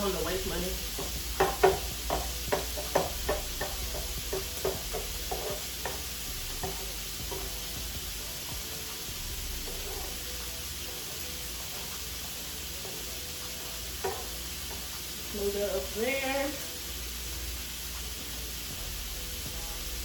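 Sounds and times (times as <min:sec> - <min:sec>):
spatula scraping and tapping griddle: 0:00.0 - 0:09.1, 0:09.7 - 0:15.5
food sizzling on griddle: 0:00.0 - 0:20.0.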